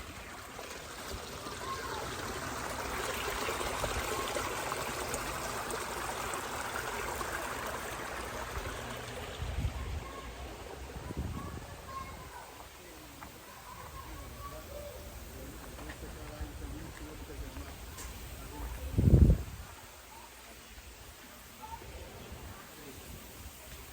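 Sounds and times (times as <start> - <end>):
stream rushing water: 0.0 - 11.2.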